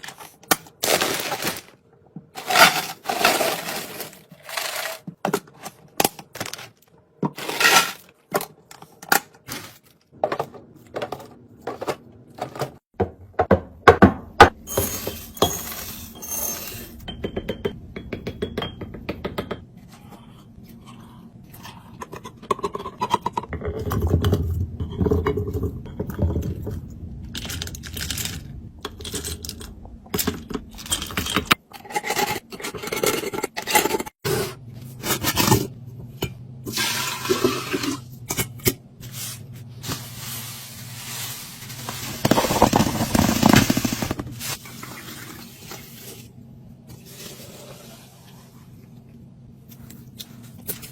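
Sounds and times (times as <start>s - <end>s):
hard packaging clinking and knocking: 0.0s - 8.5s, 41.8s - 44.2s.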